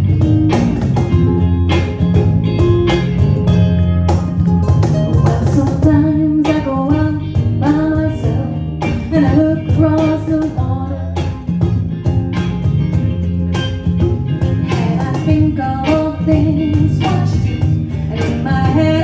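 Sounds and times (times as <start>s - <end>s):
guitar band music: 0.0s - 19.0s
person singing: 5.0s - 11.4s, 14.4s - 19.0s.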